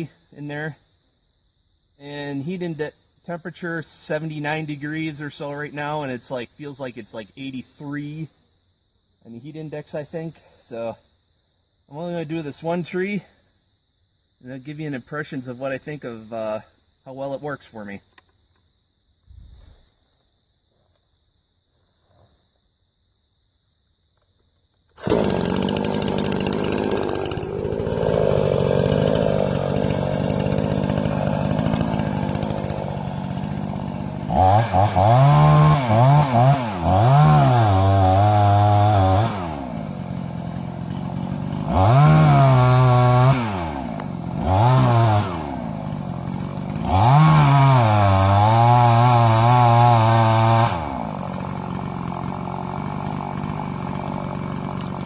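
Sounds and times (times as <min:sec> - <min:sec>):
chainsaw engine idling and revving: 0:25.0 - 0:55.0.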